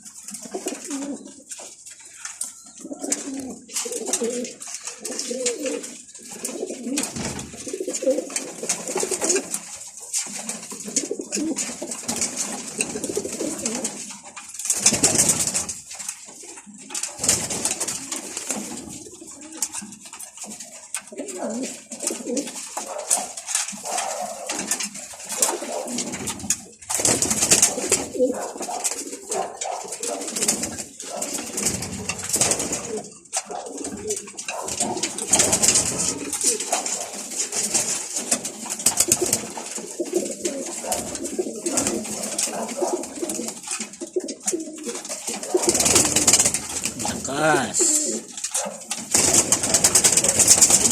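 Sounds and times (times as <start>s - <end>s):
pigeons cooing: 0.0s - 50.9s.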